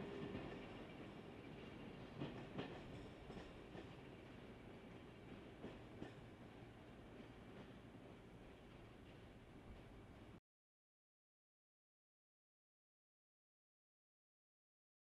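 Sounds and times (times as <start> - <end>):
diesel train low rumble: 0.0 - 10.4.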